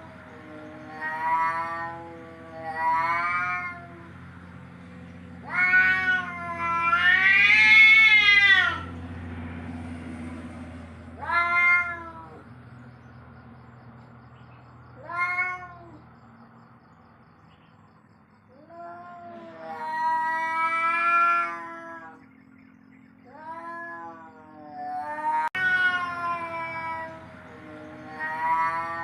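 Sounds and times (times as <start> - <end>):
cat yowling: 0.0 - 4.2, 5.4 - 9.0, 11.2 - 12.5, 15.0 - 16.0, 18.5 - 22.3, 23.2 - 29.0.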